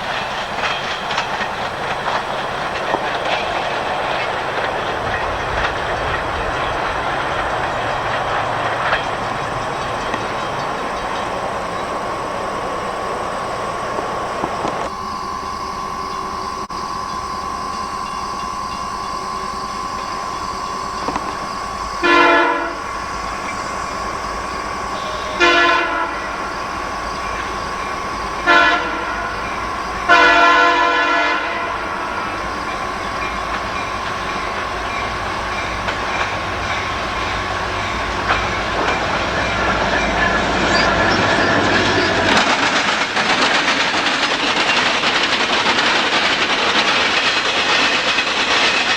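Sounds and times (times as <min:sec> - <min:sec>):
train wheels clicking on rails: 0:00.0 - 0:48.9
locomotive air horn: 0:19.2 - 0:42.6.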